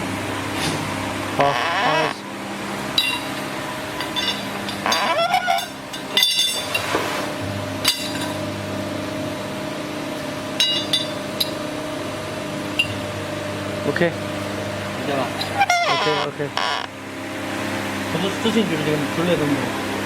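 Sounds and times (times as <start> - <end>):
machine hum: 0.0 - 20.0
metallic clanks and clinks: 3.0 - 3.3, 4.0 - 6.9.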